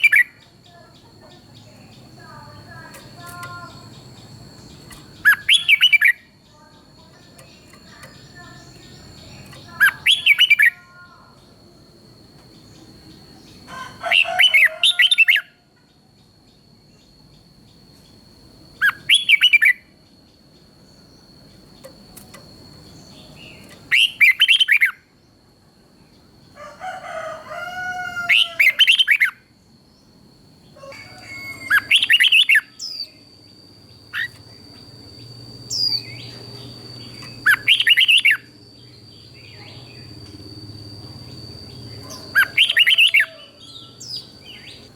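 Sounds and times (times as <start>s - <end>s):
bird whistled song: 0.0s - 0.5s, 2.9s - 6.3s, 7.2s - 10.8s, 18.8s - 19.9s, 22.9s - 25.1s, 28.3s - 29.5s, 31.0s - 44.9s.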